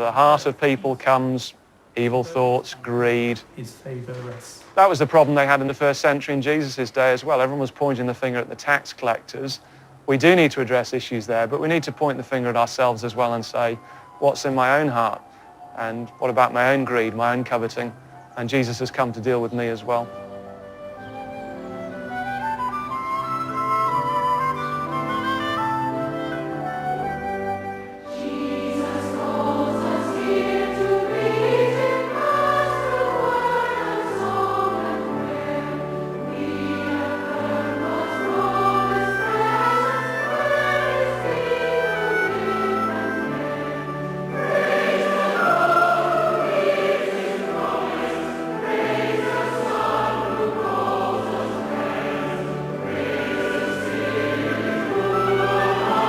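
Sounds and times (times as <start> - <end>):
choir singing a hymn: 10.2 - 56.0
instrumental accompaniment: 19.6 - 56.0.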